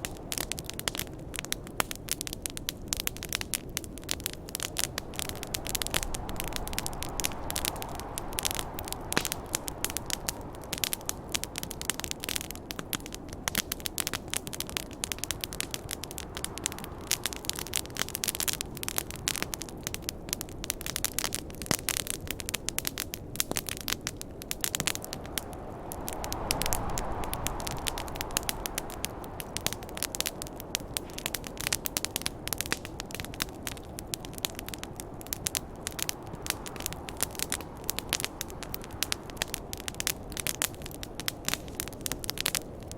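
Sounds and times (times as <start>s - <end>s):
campfire crackling: 0.0s - 42.9s
snowstorm wind: 0.0s - 42.9s.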